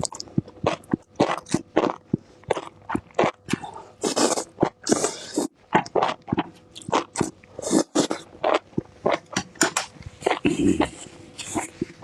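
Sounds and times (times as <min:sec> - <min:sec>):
crunching and chewing: 0:00.0 - 0:09.4, 0:10.0 - 0:12.0.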